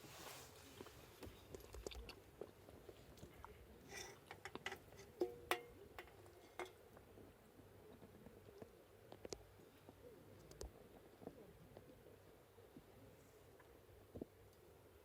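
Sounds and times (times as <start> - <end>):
faint chewing: 0.5 - 6.7.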